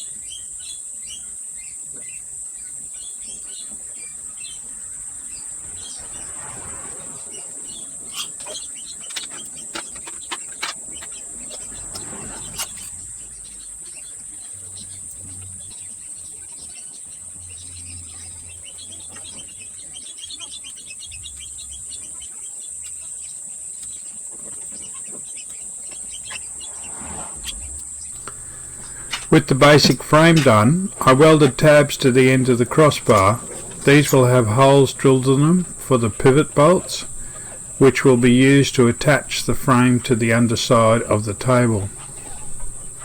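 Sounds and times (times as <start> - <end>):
faint bird chirps: 0.0 - 43.0
insects chirring: 25.4 - 43.0.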